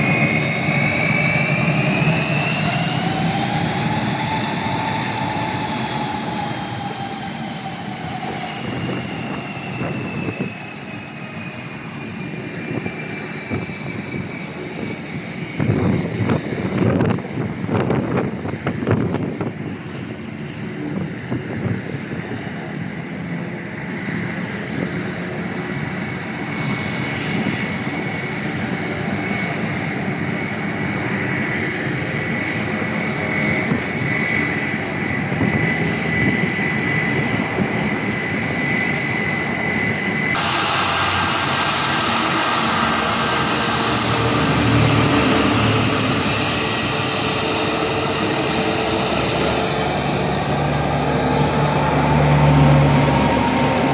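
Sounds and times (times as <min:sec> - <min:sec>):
aircraft engines running: 0:00.0 - 0:53.9
thin high whine: 0:40.3 - 0:53.9.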